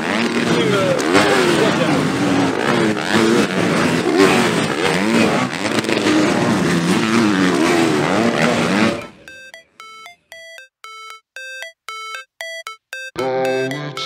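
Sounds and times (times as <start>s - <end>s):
motocross bikes racing: 0.0s - 9.2s.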